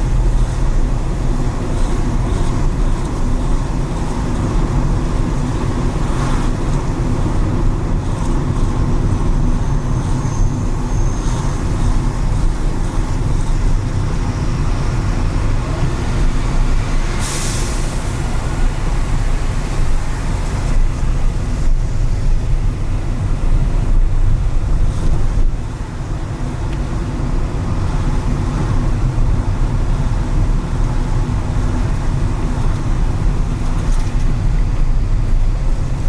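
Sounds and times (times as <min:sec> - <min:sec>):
car engine and road rumble: 0:00.0 - 0:36.0
tyre hiss on wet road: 0:16.9 - 0:20.7.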